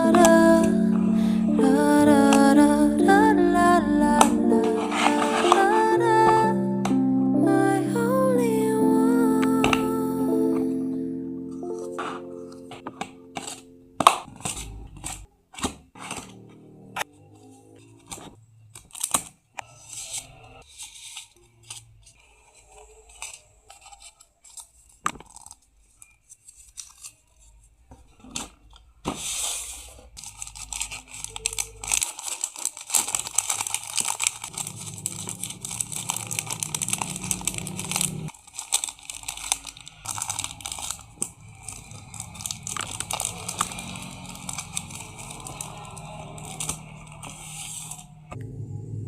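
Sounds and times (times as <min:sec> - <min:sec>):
plastic and paper crinkling: 0:00.0 - 0:03.3, 0:04.2 - 0:07.0, 0:11.6 - 0:48.2
packaging tearing: 0:18.8 - 0:19.4, 0:29.7 - 0:48.1.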